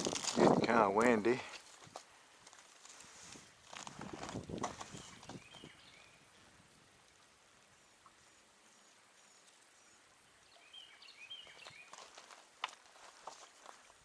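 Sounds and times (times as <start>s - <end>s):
faint bird chirps: 4.9s - 12.0s.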